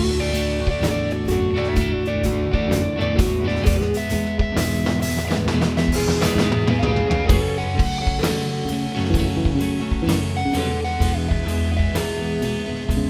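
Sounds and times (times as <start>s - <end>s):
drum hits: 0.0s - 13.0s
guitar: 0.0s - 13.0s
rock band playing: 0.0s - 13.0s.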